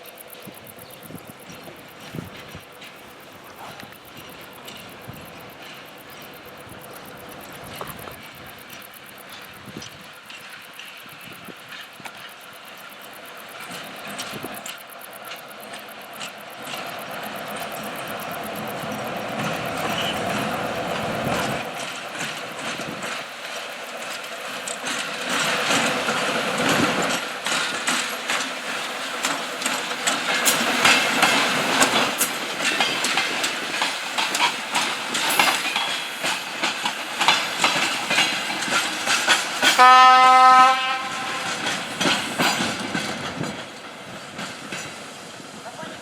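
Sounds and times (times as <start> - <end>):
wheels clicking over rail joints: 0.0 - 46.0
locomotive horn blast: 39.8 - 41.5.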